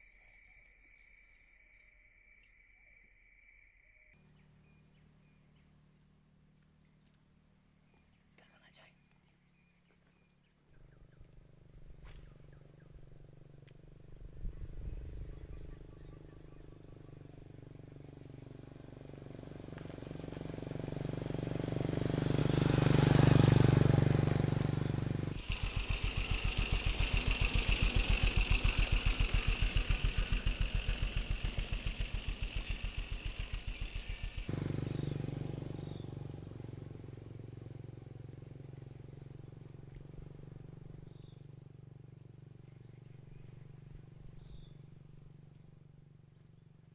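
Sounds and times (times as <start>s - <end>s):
motorcycle engine passing by: 9.5s - 46.9s.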